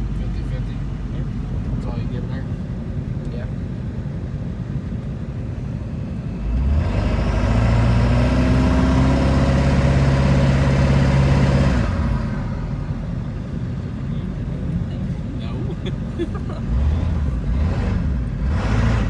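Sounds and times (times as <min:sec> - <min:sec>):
diesel truck engine revving: 0:06.1 - 0:19.0.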